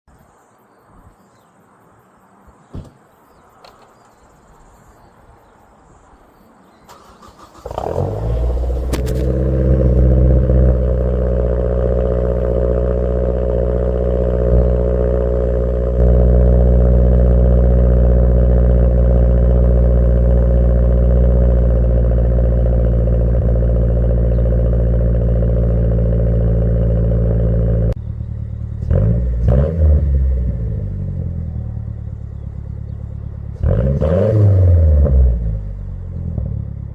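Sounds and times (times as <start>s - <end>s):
car engine cranking: 6.9s - 16.0s
car engine idling: 6.9s - 36.9s
car engine revving: 6.9s - 36.9s.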